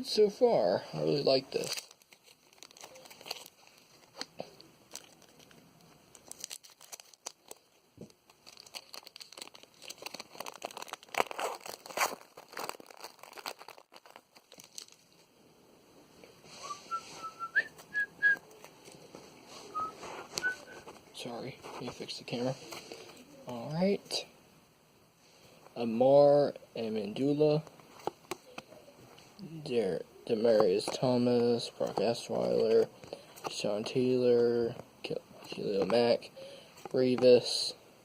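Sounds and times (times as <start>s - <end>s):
wrapper tearing: 1.5s - 4.3s, 4.9s - 15.2s
card wrappers crinkling: 1.5s - 15.3s, 30.4s - 36.2s
person whistling: 16.6s - 18.4s, 19.7s - 20.8s.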